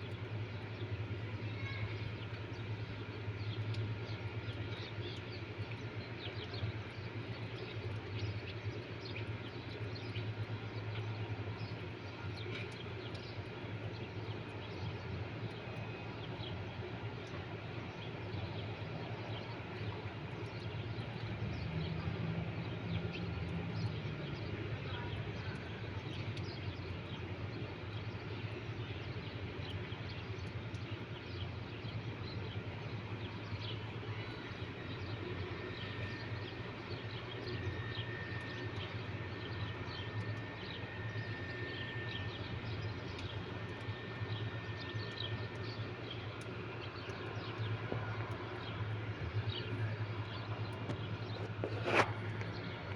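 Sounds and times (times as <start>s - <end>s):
steady low rumble: 41.4s - 52.9s.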